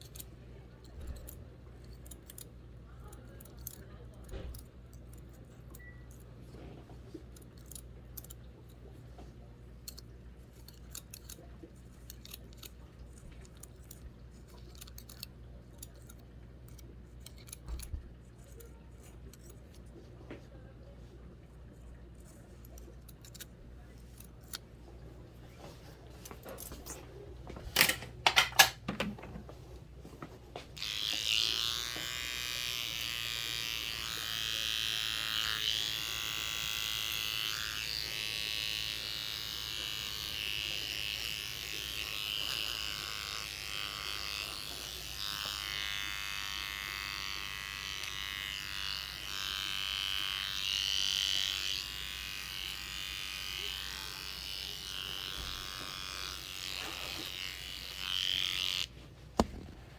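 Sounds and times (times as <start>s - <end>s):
sharp clicks and knocks: 27.6s - 29.5s
electric hair clippers buzzing: 27.8s - 29.0s, 30.6s - 59.9s.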